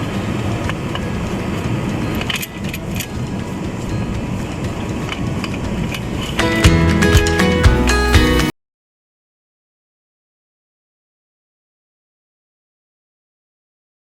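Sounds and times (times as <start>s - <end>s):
forklift diesel engine running: 0.0s - 8.5s
music: 0.0s - 8.5s.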